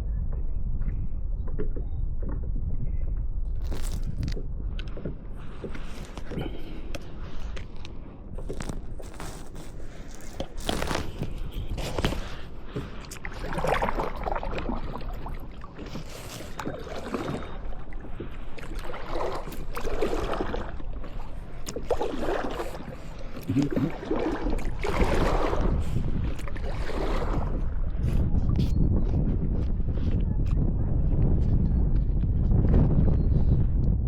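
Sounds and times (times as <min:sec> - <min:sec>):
steady low rumble: 0:00.0 - 0:34.0
paddle splashing through water: 0:08.4 - 0:28.1.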